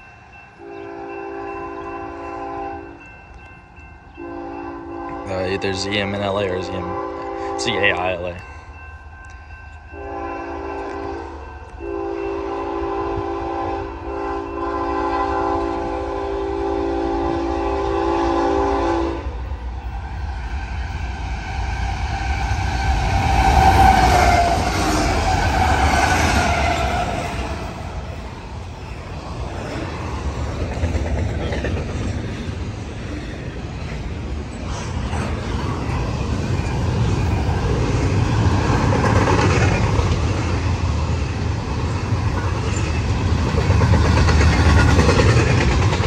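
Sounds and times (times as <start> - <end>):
diesel locomotive engines passing: 0.0 - 46.0
locomotive air horn: 0.6 - 3.0, 4.2 - 5.4, 6.8 - 7.8, 10.0 - 19.4, 22.2 - 27.8.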